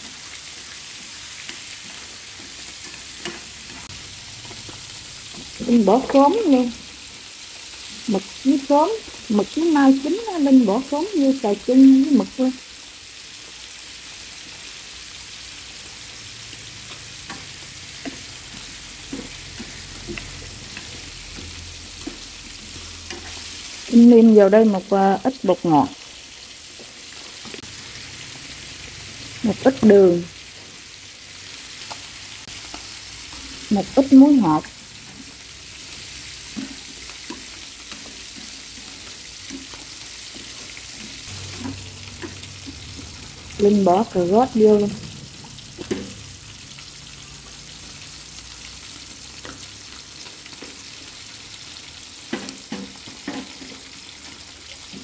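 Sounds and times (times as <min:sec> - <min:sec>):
food sizzling in a pan: 0:00.0 - 0:55.0
chopsticks tapping pan: 0:01.4 - 0:06.2, 0:16.9 - 0:23.4.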